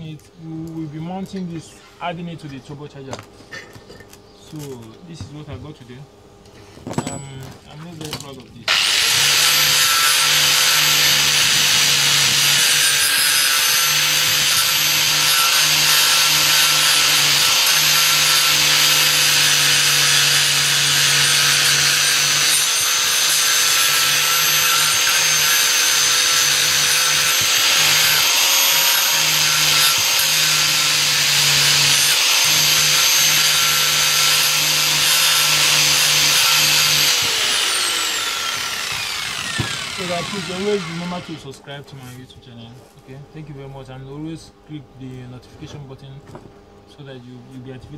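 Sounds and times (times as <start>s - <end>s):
electric power tool running: 8.7s - 41.4s.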